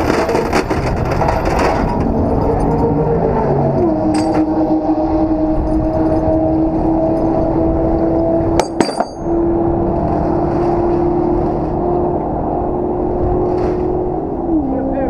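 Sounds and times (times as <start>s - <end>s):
sharp metallic clinks: 4.1s - 4.4s, 8.6s - 9.4s.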